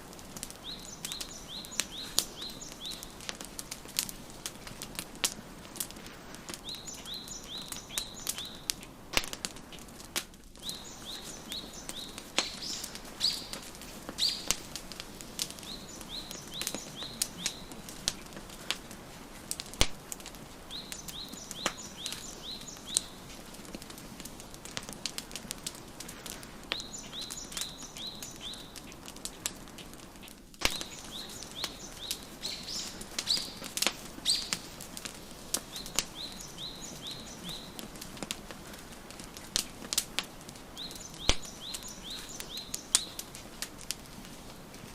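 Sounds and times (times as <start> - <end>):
wood fire crackling and popping: 0.0 - 44.9
songbird chirping: 0.3 - 4.7, 6.5 - 8.9, 10.6 - 18.6, 20.5 - 23.4, 26.7 - 29.5, 30.6 - 39.7, 40.6 - 43.3.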